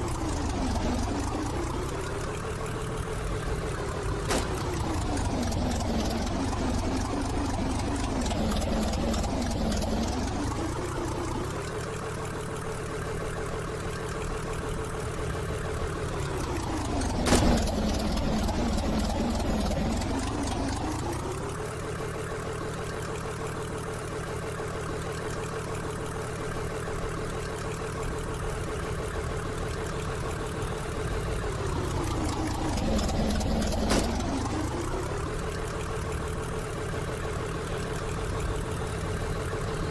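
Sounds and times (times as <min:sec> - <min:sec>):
train engine humming: 0:00.0 - 0:39.9.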